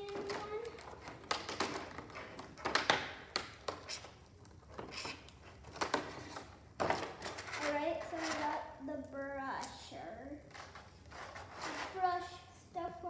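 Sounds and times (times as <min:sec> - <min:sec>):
plastic tools clicking and tapping: 0:00.0 - 0:07.6.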